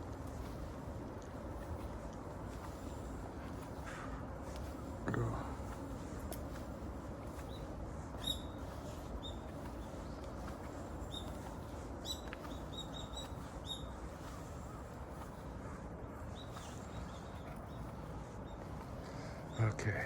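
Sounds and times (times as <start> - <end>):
low background noise: 0.0 - 20.0
small bird chirping: 7.3 - 15.4.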